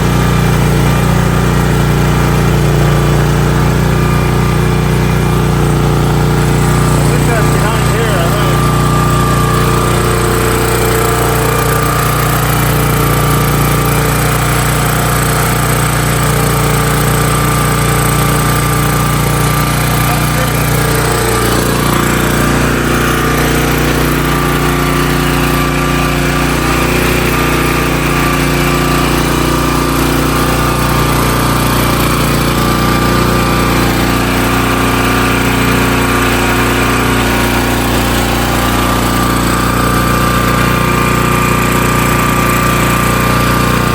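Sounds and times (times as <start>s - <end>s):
pressure washer engine running: 0.0s - 43.9s.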